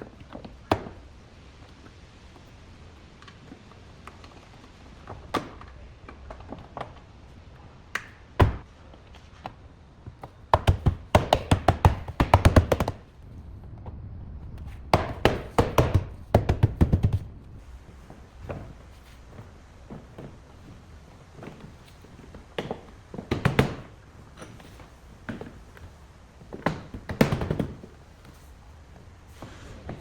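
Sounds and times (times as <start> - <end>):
rapid sharp taps and knocks: 10.2 - 13.1, 14.9 - 17.5, 22.5 - 24.0, 26.6 - 28.0.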